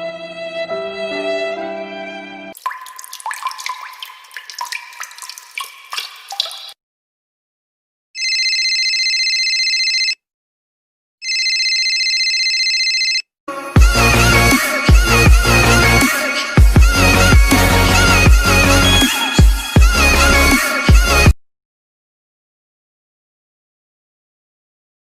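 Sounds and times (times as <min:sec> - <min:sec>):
water dripping: 0:02.6 - 0:06.8
telephone ringing: 0:08.2 - 0:10.2, 0:11.2 - 0:13.2.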